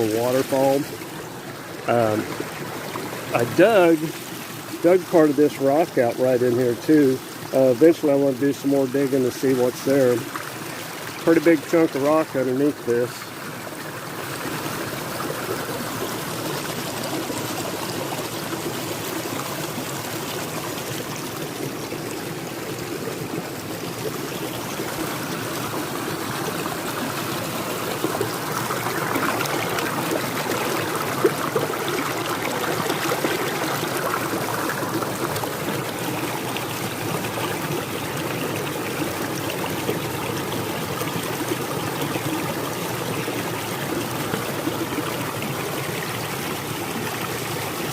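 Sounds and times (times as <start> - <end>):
water trickling over small waterfall: 0.0 - 47.9.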